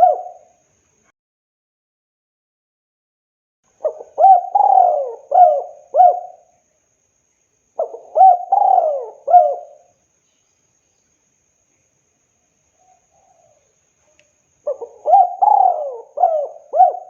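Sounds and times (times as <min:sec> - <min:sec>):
dove cooing: 0:00.0 - 0:00.5, 0:03.8 - 0:06.5, 0:07.8 - 0:09.9, 0:14.6 - 0:17.0.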